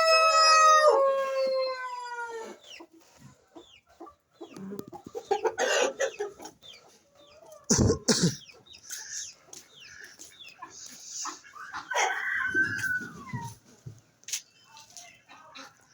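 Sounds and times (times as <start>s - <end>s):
loud low chicken calls: 0.0s - 2.7s, 4.5s - 6.6s, 7.4s - 13.6s
chickens clucking: 0.0s - 15.9s.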